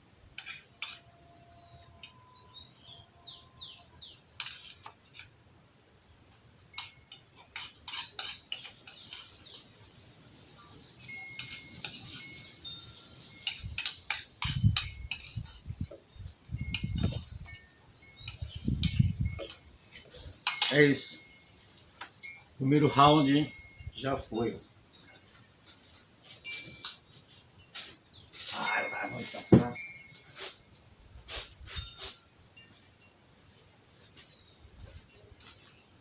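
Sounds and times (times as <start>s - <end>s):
cutlery clinking against dishes: 0.4s - 2.2s, 4.4s - 5.3s, 6.7s - 9.6s, 11.1s - 12.6s, 13.3s - 15.6s, 18.1s - 20.9s
birds chirping: 0.4s - 5.2s, 5.9s - 14.1s, 15.0s - 25.5s, 26.6s - 29.3s.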